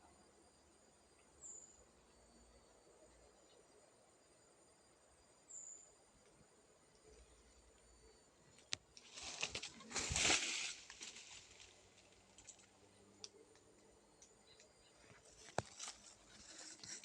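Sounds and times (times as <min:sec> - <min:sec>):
rustling and crackling: 0:08.7 - 0:12.8, 0:15.2 - 0:17.0.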